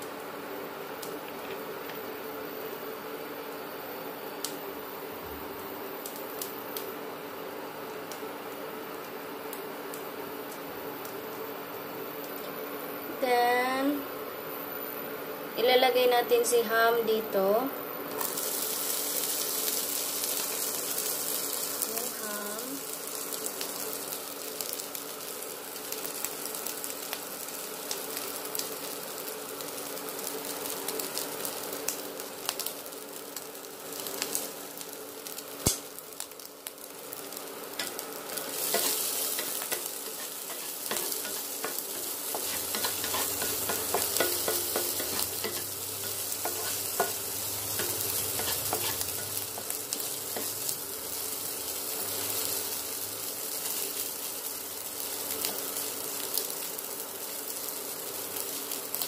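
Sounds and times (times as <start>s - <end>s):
ham sizzling in a pan: 0.0s - 59.0s
wooden spatula stirring in a pan: 37.8s - 50.8s.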